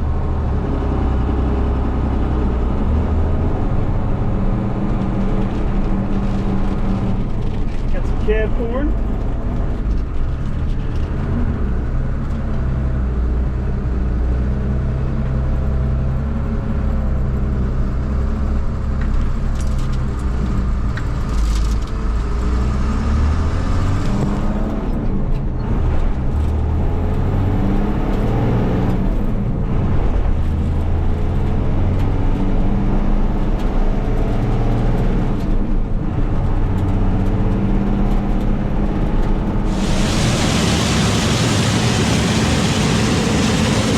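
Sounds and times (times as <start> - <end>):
truck engine running: 39.6 - 43.9.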